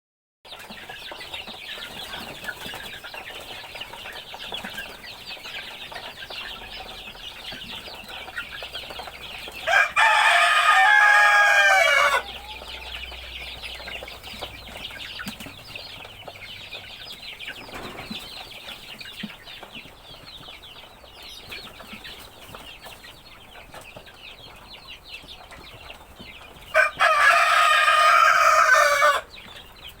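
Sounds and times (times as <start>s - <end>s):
chickens clucking: 0.5s - 30.0s
rooster crowing: 9.6s - 13.0s, 26.7s - 29.3s.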